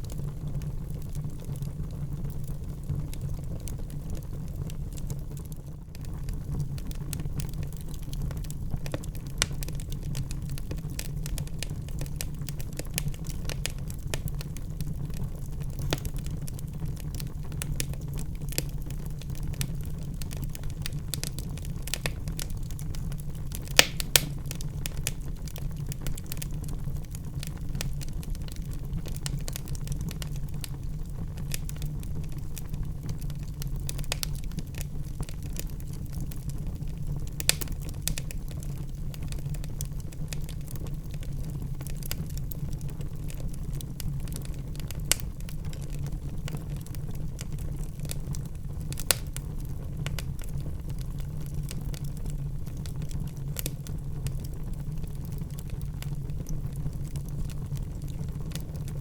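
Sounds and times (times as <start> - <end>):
wood fire crackling: 0.0 - 59.0
loud fire pops: 6.2 - 41.2, 47.8 - 50.5.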